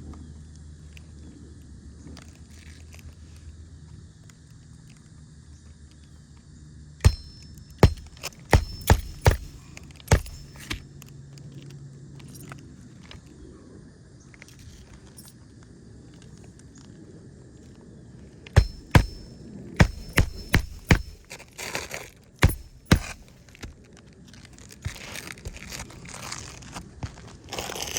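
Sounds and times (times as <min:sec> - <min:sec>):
nails hammered into shingles: 0:07.0 - 0:10.8, 0:18.6 - 0:21.4, 0:22.4 - 0:23.8.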